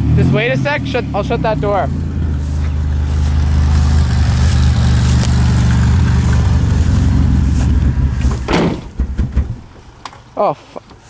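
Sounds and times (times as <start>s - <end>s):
minivan engine running: 0.0s - 11.0s
short knock: 8.3s - 9.7s.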